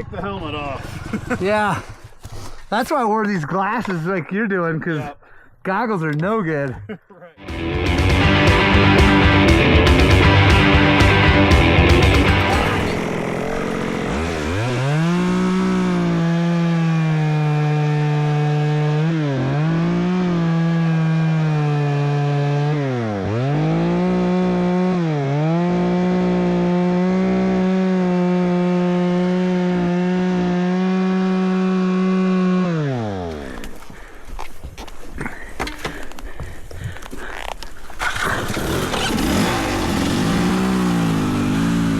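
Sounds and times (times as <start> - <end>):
chainsaw cutting through wood: 7.5 - 33.9, 37.9 - 41.9.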